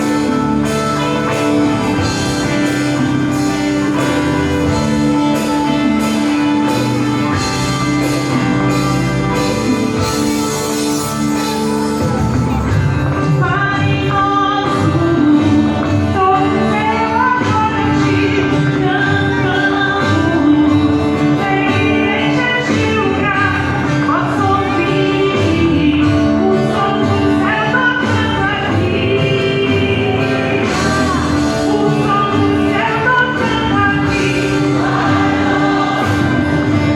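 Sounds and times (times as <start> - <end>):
band accompaniment: 0.0 - 36.9
choir singing: 30.6 - 36.9.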